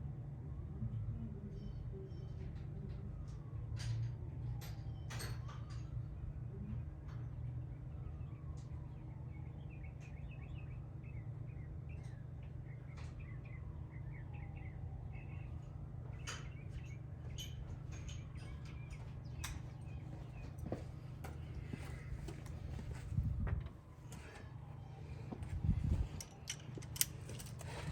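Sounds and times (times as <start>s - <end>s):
steady low hum: 6.2s - 27.9s
small birds chirping: 7.7s - 22.9s.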